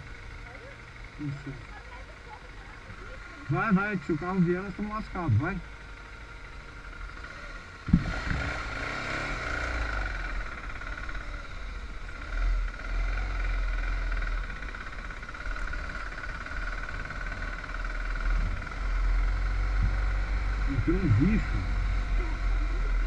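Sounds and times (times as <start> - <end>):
motorcycle engine running: 0.0 - 23.0
sharp thump: 7.9 - 8.5.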